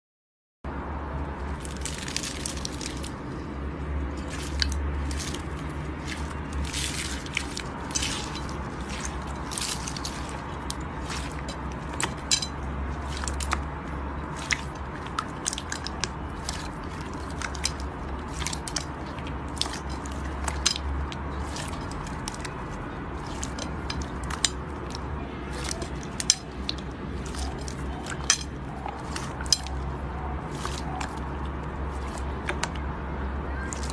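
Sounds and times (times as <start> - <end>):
slime squished by hand: 4.1 - 20.7, 28.9 - 32.8.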